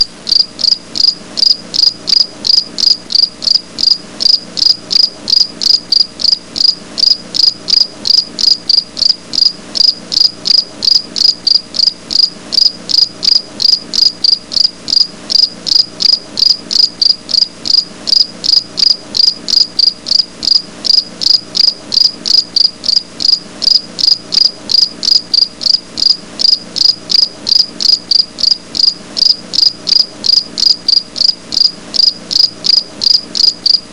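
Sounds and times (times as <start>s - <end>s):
insect chirping: 0.0s - 33.9s.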